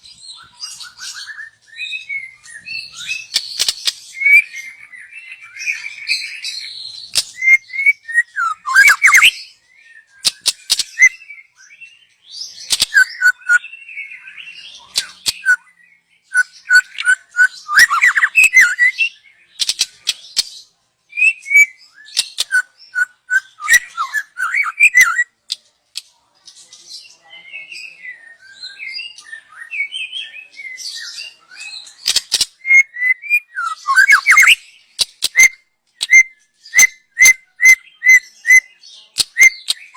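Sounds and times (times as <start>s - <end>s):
bird singing whistled phrases: 0.3s - 20.0s, 21.1s - 25.3s, 27.6s - 39.9s
sharp clicking bird notes: 3.3s - 4.0s, 33.9s - 36.2s.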